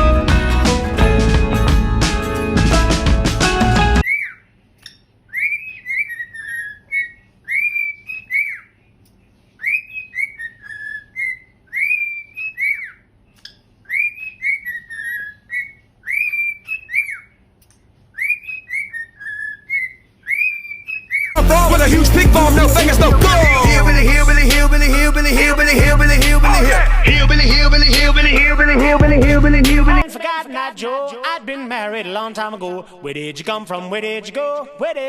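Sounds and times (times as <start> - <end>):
parrot whistling a tune: 4.0 - 4.4, 5.3 - 8.7, 9.6 - 13.0, 13.9 - 17.4, 18.2 - 21.4.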